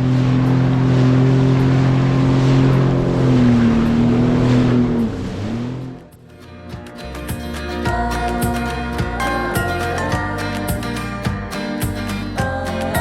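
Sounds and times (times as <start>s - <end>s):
jet ski engine droning: 0.0s - 6.2s
water rushing: 0.0s - 6.2s.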